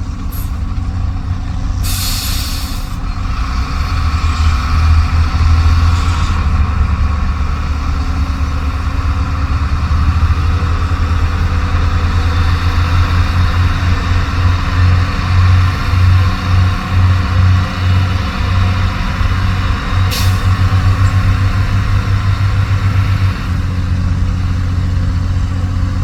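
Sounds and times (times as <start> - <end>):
diesel truck engine humming: 0.0 - 26.0
air brake hiss: 0.3 - 0.7, 1.8 - 3.0, 20.1 - 20.5.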